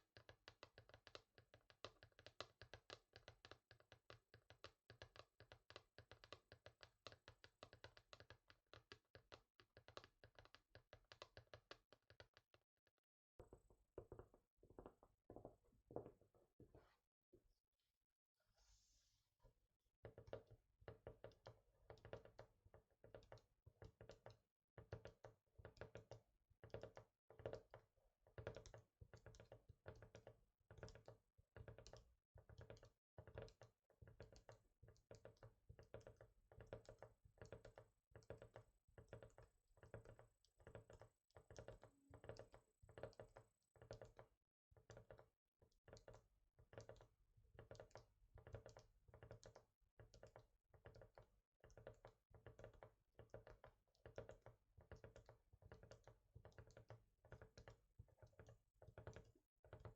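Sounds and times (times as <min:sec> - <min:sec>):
fingers tapping on hard surface: 0:13.4 - 0:16.9, 0:20.0 - 0:45.3, 0:45.9 - 0:59.9.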